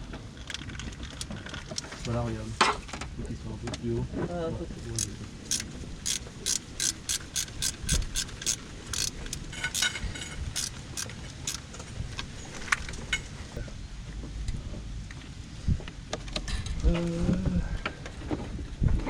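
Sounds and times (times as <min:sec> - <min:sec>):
ratchet wrench clicking: 0:04.9 - 0:11.7.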